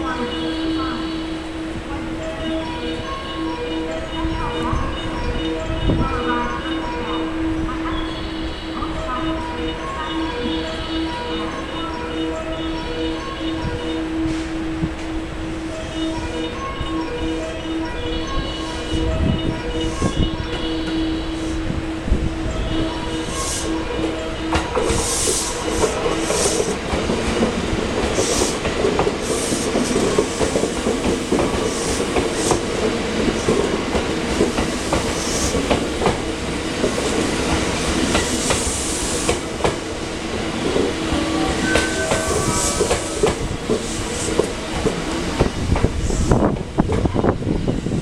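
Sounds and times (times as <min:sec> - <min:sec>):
train running rumble: 0:00.0 - 0:48.0
train wheels clicking over rail joints: 0:23.0 - 0:41.0.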